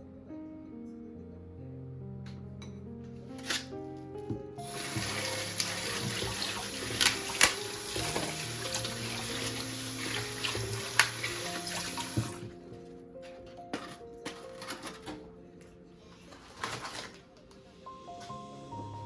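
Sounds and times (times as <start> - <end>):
tap water running into sink: 4.6 - 12.5.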